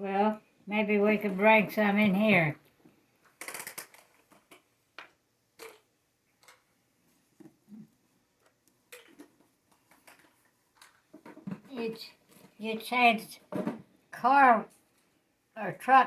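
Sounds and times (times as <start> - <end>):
faint clicks and taps: 2.6 - 13.9.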